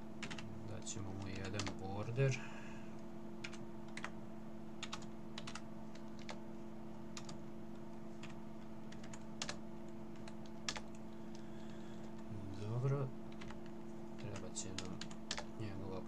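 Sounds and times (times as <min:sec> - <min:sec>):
low electrical hum: 0:00.0 - 0:16.0
keyboard typing: 0:00.2 - 0:01.8, 0:03.4 - 0:04.1, 0:04.8 - 0:06.4, 0:07.1 - 0:07.4, 0:08.2 - 0:11.1, 0:13.3 - 0:15.5.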